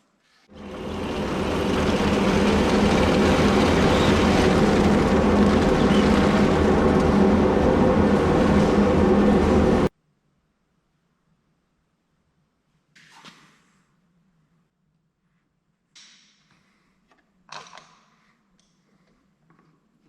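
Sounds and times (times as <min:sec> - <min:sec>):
electric power tool motor running: 0:00.5 - 0:07.5.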